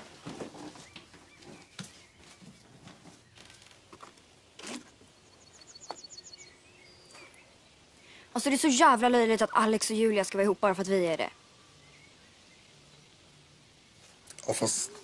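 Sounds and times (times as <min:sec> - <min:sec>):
outdoor ambience: 0:00.0 - 0:15.0
small bird chirping: 0:04.9 - 0:15.0.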